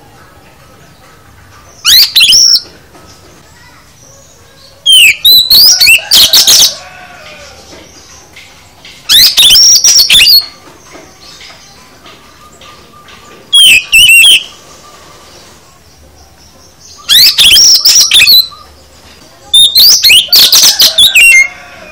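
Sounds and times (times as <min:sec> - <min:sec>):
bird singing whistled phrases: 0:01.8 - 0:02.6, 0:04.8 - 0:06.8, 0:09.1 - 0:10.6, 0:12.3 - 0:15.2, 0:16.9 - 0:18.8, 0:19.5 - 0:21.6.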